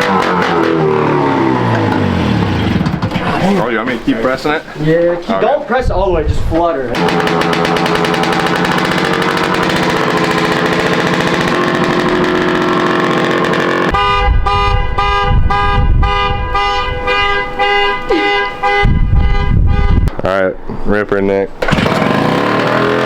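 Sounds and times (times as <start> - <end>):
go-kart engine revving: 0.0 - 3.5, 7.0 - 14.2, 21.6 - 23.0.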